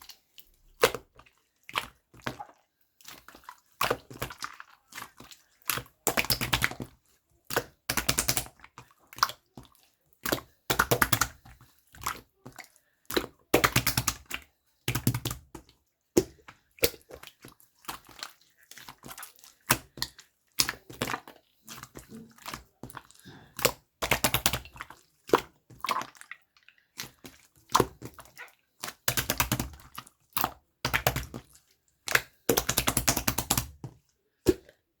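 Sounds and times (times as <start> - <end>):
slime squeezed wet popping: 27.0 - 33.8, 34.4 - 34.8.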